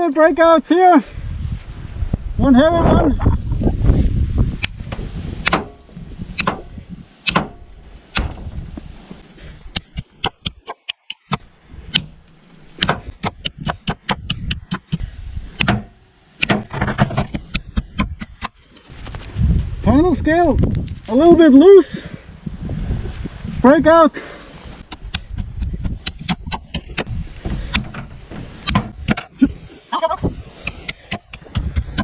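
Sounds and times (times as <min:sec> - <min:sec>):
knife striking hard object: 0:05.4 - 0:05.8, 0:06.4 - 0:06.7, 0:07.3 - 0:08.4, 0:09.7 - 0:12.2, 0:12.8 - 0:15.0, 0:15.6 - 0:16.7, 0:17.3 - 0:18.6, 0:24.9 - 0:27.1, 0:28.7 - 0:29.3, 0:30.7 - 0:32.0.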